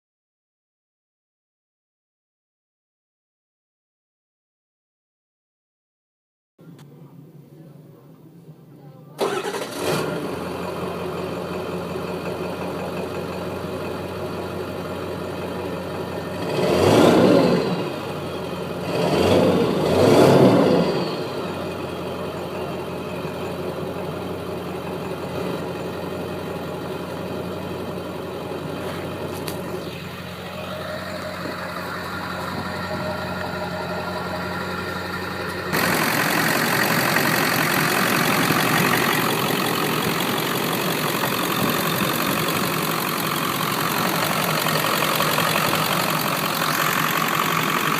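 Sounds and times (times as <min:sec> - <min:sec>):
diesel engine idling: 0:09.1 - 0:47.9
diesel engine starting: 0:09.1 - 0:47.9
engine revving: 0:09.2 - 0:12.6, 0:15.9 - 0:23.4, 0:27.7 - 0:47.9.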